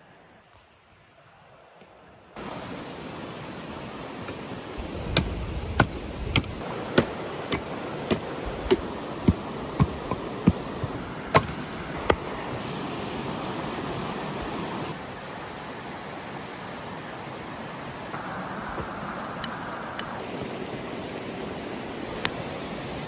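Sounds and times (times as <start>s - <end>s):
chopping knocks: 5.1s - 12.2s.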